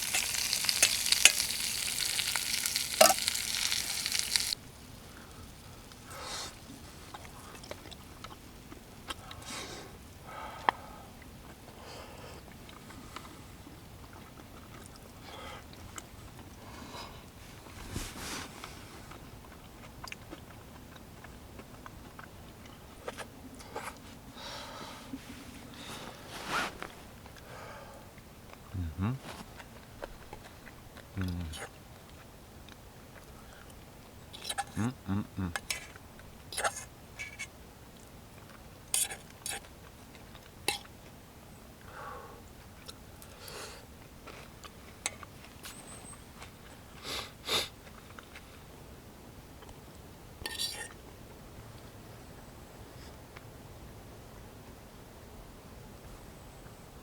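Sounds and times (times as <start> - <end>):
food sizzling in a pan: 0.0 - 4.6
faint rustle: 16.7 - 19.6, 23.0 - 27.6
short rustling scrapes: 17.5 - 19.1, 25.2 - 27.2.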